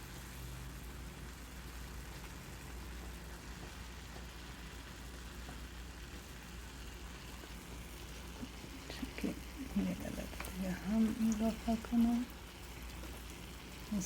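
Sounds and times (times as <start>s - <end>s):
chicken sizzling softly: 0.0s - 14.0s.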